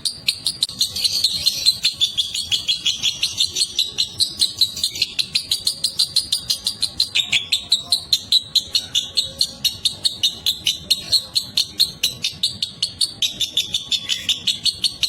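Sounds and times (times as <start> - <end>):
lovebird chattering: 0.0 - 15.0.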